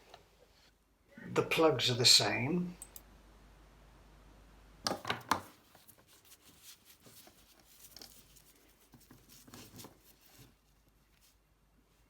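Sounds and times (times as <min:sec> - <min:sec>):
faint tapping and rustling: 0:04.8 - 0:11.4.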